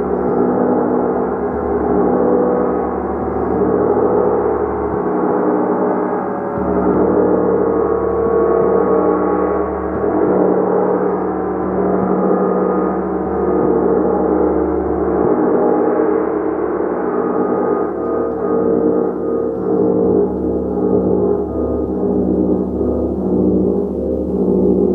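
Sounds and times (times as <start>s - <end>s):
gong wash: 0.0s - 24.9s.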